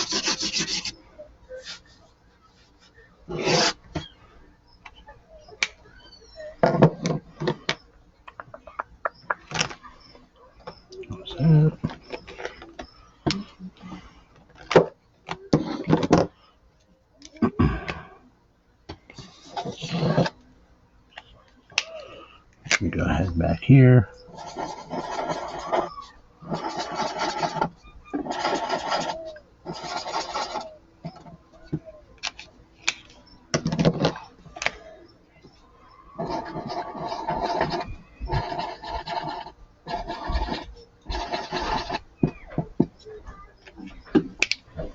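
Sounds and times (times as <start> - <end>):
marker scribbling on paper: 0.0 - 1.0, 2.6 - 3.8, 24.3 - 31.3
markers scratching on paper: 0.0 - 4.1, 19.2 - 20.4, 24.2 - 31.4, 36.2 - 44.0.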